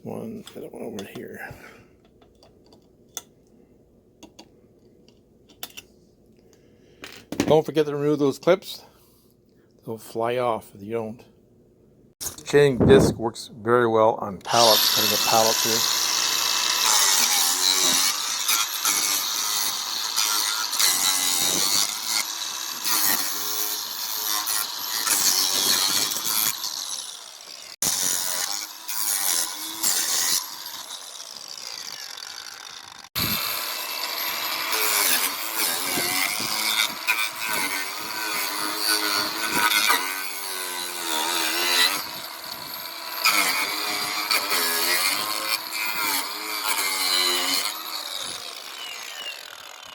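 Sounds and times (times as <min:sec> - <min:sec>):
angle grinder cutting wood: 0:14.4 - 0:49.9.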